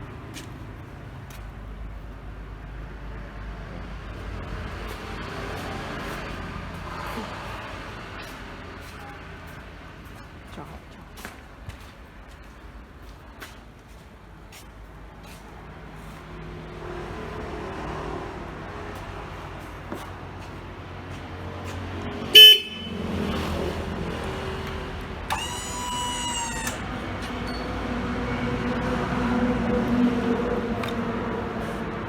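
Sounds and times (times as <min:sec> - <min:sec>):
electric horn beeping: 0:22.4 - 0:23.1.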